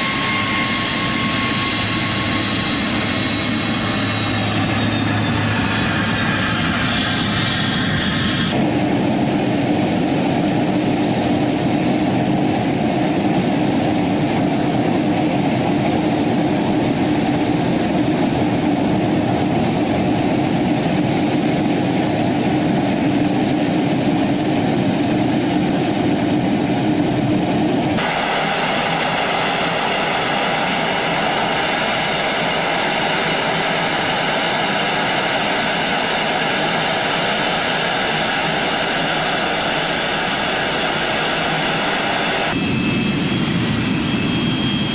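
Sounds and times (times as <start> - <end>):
hissing jet whine: 0.0 - 11.0, 24.4 - 44.9
jet engine low rumble: 0.0 - 44.9.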